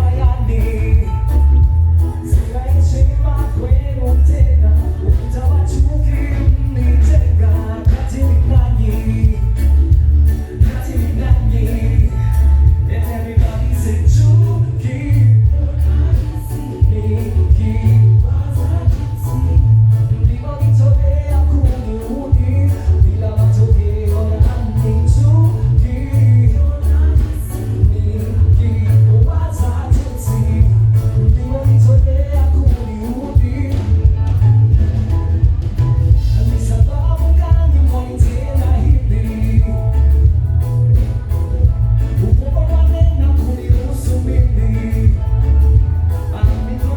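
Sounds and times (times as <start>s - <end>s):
heavy pulsing bass: 0.0s - 46.9s
voices singing together: 14.9s - 20.4s.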